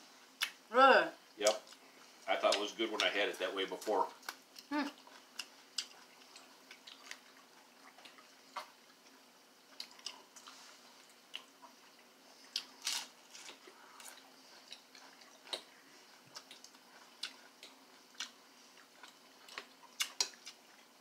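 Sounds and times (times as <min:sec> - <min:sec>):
person chewing crunchy food: 0:04.2 - 0:21.0.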